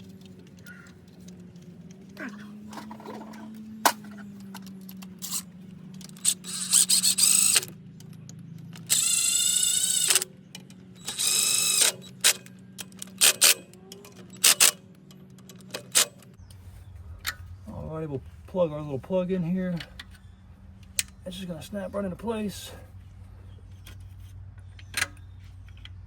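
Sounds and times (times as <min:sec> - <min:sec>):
power tool whirring: 0:04.9 - 0:07.8, 0:08.6 - 0:14.8
rapid ratchet clicking: 0:05.2 - 0:07.7, 0:08.8 - 0:13.7, 0:14.3 - 0:16.3.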